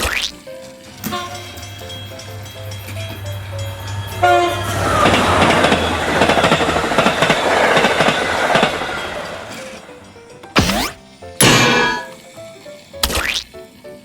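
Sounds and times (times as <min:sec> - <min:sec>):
train rattling clatter: 0:00.6 - 0:10.5
train horn toot: 0:01.0 - 0:09.8.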